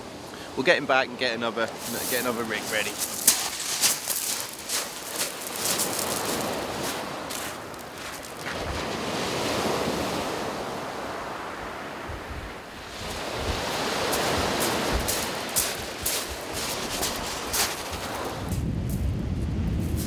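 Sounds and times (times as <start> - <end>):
waves washing up shingle beach: 0.0 - 18.6
footsteps crunching on pebbles: 1.7 - 8.7, 14.0 - 19.0
wind buffeting microphone: 12.0 - 20.0.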